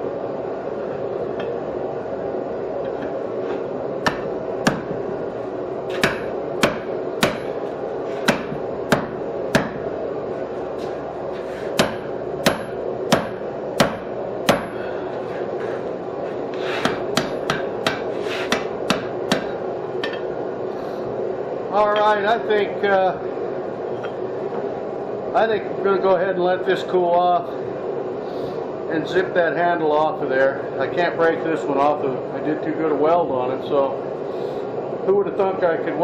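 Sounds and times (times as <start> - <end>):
steady hum: 0.0 - 36.0
hammer striking hot steel on anvil: 4.0 - 4.9, 5.9 - 7.6, 8.2 - 9.8, 11.7 - 14.8, 16.6 - 20.3.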